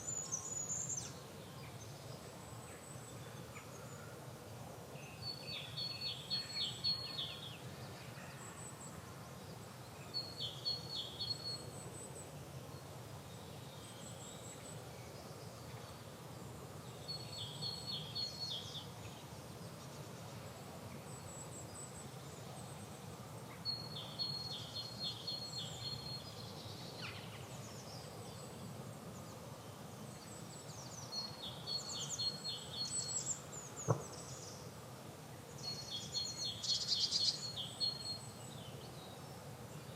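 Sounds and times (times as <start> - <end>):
faint calls of other birds: 0.0 - 39.9
steady low background noise: 0.0 - 39.9
songbird high-pitched song: 5.0 - 7.9, 9.8 - 16.1, 16.8 - 19.3, 23.5 - 28.7, 29.3 - 34.7, 35.5 - 39.9.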